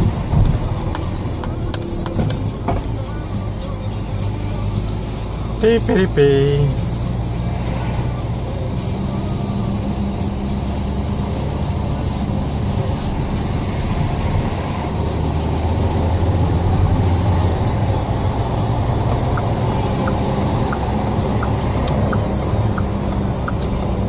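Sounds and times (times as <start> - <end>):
diesel car engine from inside cabin: 0.0 - 24.0
light regular ticking: 18.9 - 24.0.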